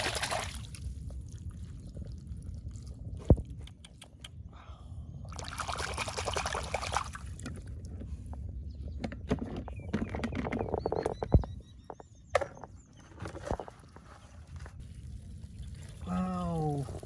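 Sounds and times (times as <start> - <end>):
water splashing: 0.0 - 0.9, 5.4 - 7.4
water sloshing and trickling: 0.0 - 3.7, 5.3 - 17.0.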